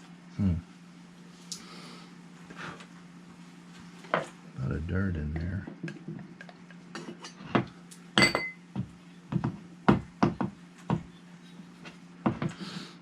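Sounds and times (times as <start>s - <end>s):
ringing metallic clink: 8.2s - 8.6s.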